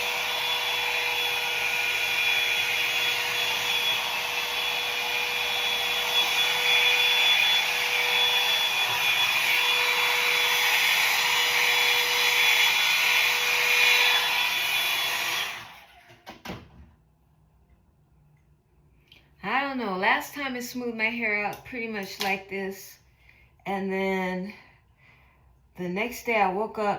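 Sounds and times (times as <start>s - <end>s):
hair dryer blowing with whine: 0.0s - 16.6s.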